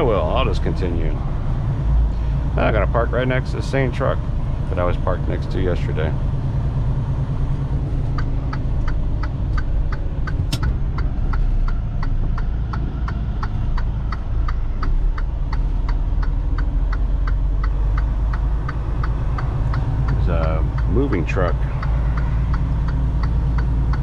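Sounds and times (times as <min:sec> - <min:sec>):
diesel engine running low: 0:00.0 - 0:24.0
turn signal clicking: 0:06.4 - 0:24.0.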